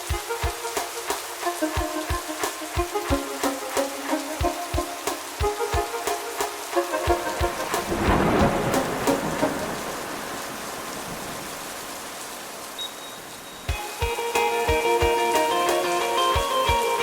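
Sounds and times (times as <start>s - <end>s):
background music beat: 0.0s - 9.9s, 13.7s - 17.0s
rain hiss: 0.0s - 17.0s
thunderclap rumbling: 7.1s - 11.9s.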